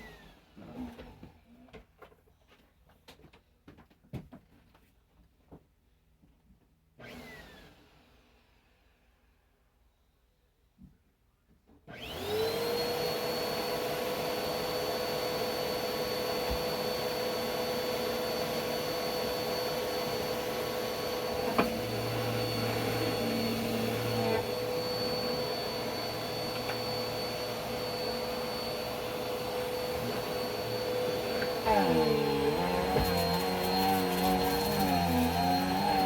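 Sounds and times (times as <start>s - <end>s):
vacuum cleaner whining: 0.0s - 1.4s, 7.0s - 8.9s, 11.9s - 36.0s.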